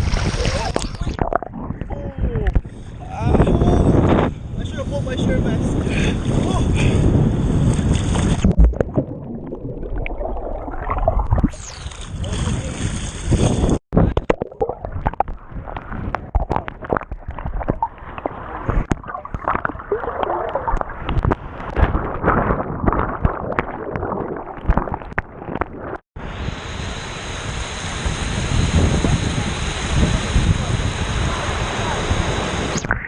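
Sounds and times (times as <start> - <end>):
sea water splashing: 0.0 - 1.8, 7.6 - 26.0
wind on microphone: 0.0 - 9.3, 9.9 - 24.9, 25.5 - 33.0.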